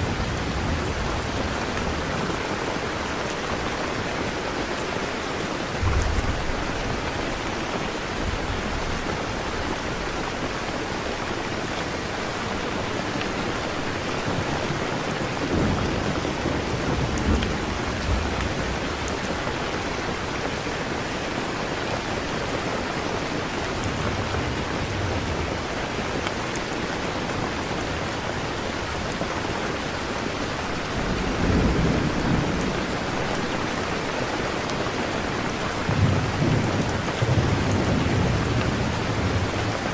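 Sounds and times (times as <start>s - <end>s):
steady rain: 0.0s - 39.9s
low rumbles of thunder: 5.7s - 7.0s, 15.4s - 20.0s, 30.7s - 33.4s, 35.8s - 39.9s.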